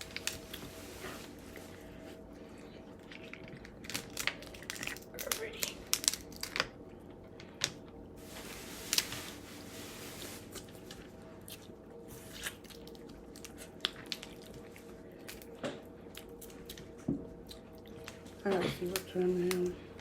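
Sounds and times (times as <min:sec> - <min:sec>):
wet squishy chewing: 0:02.5 - 0:07.6, 0:10.5 - 0:20.0
rustling: 0:08.2 - 0:11.1.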